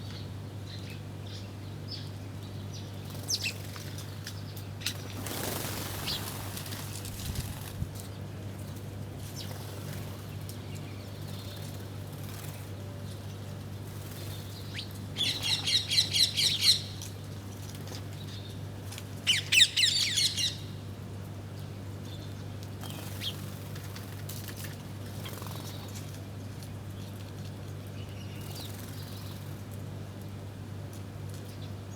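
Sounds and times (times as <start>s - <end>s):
small birds chirping harshly: 13.9s - 17.1s, 19.3s - 20.8s.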